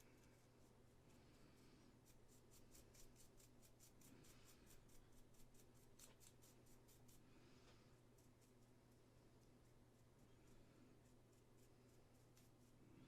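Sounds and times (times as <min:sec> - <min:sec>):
tool scratching resin model: 0:11.0 - 0:12.8.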